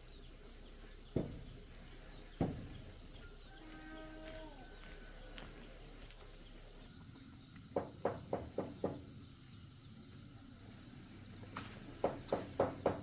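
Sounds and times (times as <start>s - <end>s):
insects trilling: 0.0s - 13.0s
sharp knocks: 1.1s - 1.6s, 2.4s - 2.8s, 7.8s - 9.1s, 12.0s - 13.0s.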